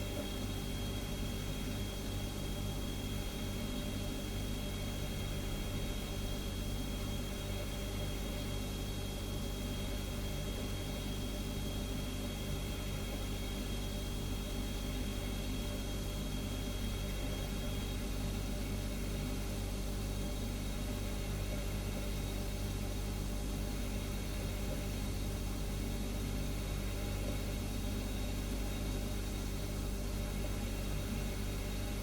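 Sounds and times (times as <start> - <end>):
refrigerator humming: 0.0 - 32.0.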